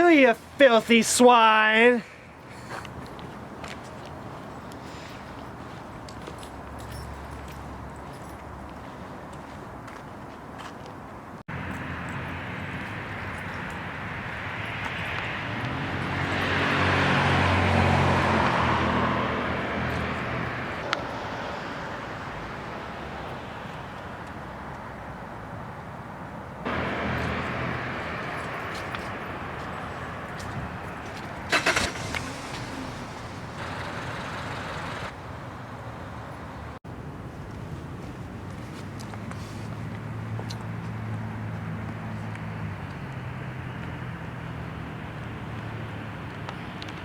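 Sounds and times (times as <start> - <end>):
traffic noise: 0.0 - 47.0
motor vehicle passing: 11.5 - 23.2, 26.7 - 36.8.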